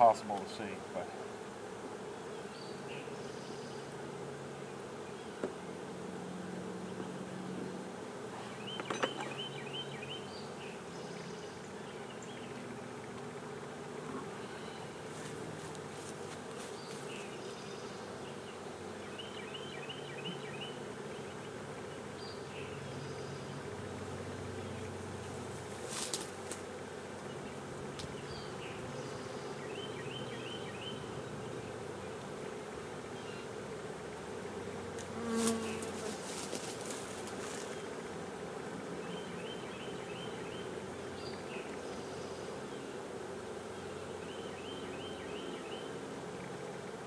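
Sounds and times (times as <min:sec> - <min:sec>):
bees buzzing: 0:00.0 - 0:08.8, 0:09.4 - 0:44.8.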